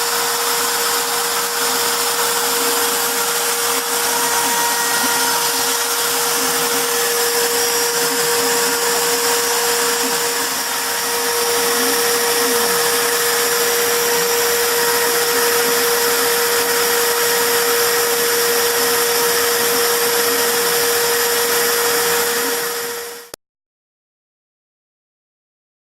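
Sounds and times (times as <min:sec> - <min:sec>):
router spindle whine: 0:00.0 - 0:23.4.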